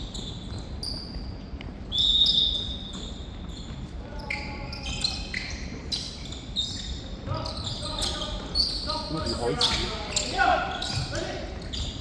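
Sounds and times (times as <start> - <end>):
shoes squeaking on hall floor: 0.0 - 12.0.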